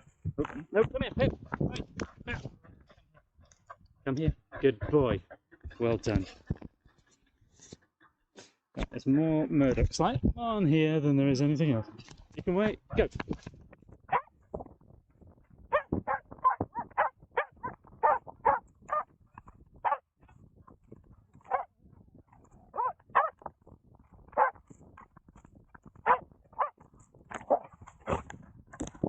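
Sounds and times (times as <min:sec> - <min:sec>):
dog barking: 0:14.1 - 0:14.3, 0:15.7 - 0:19.1, 0:19.8 - 0:20.0, 0:21.5 - 0:21.7, 0:22.7 - 0:23.4, 0:24.3 - 0:24.6, 0:26.0 - 0:26.8, 0:27.4 - 0:28.2.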